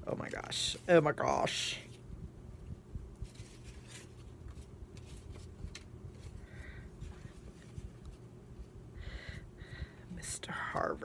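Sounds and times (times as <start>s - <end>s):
low room hum: 0.0s - 11.0s
paper rustling: 3.2s - 8.7s.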